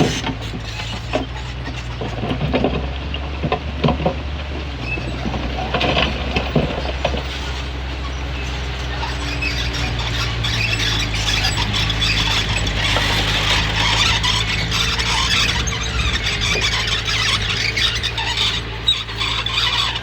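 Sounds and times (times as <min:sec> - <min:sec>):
bulldozer diesel engine running: 0:00.0 - 0:20.0
steel tracks clanking: 0:04.7 - 0:20.0.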